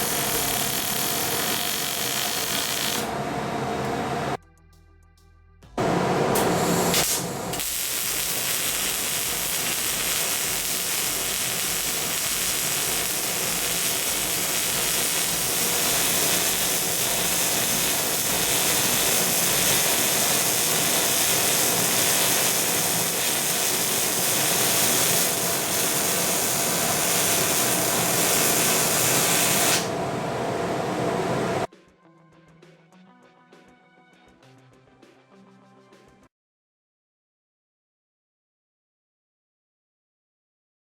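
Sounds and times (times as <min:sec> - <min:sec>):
welding arc hissing: 0:00.0 - 0:03.2, 0:05.8 - 0:30.0.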